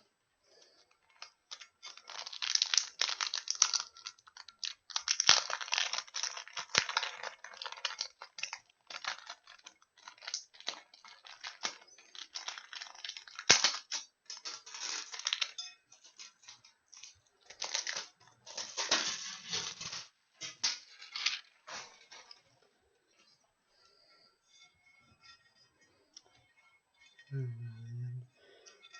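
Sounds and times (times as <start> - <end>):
packaging crinkling and tearing: 1.0 - 22.4.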